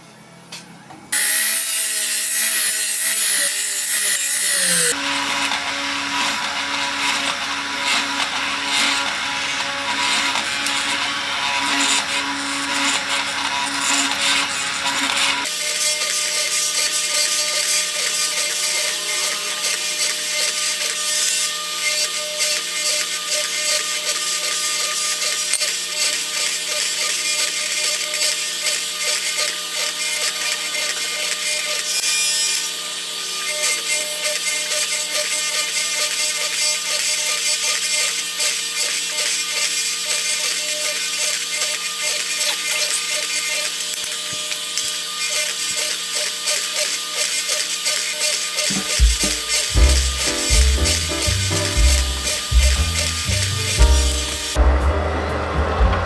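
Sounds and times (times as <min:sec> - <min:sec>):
small power tool on wood: 0:01.1 - 0:54.6.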